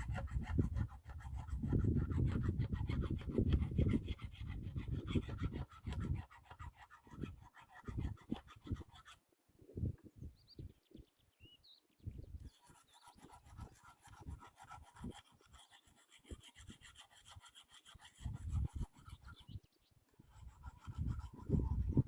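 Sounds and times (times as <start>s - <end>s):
wind rumbling on microphone: 0.0s - 6.3s, 7.1s - 8.9s, 9.6s - 11.1s, 12.0s - 12.5s, 18.2s - 19.6s, 20.2s - 22.0s
bird chirping: 10.1s - 13.3s, 19.2s - 20.0s.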